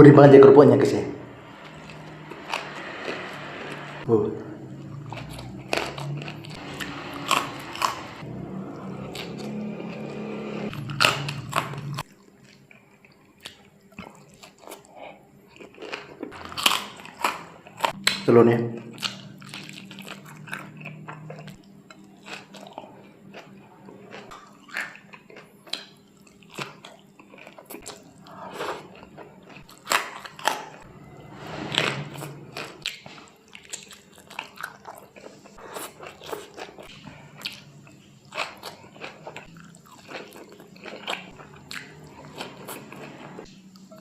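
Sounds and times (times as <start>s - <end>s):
crunchy chewing of crackers: 10.7s - 18.2s, 18.9s - 30.9s, 32.2s - 44.0s.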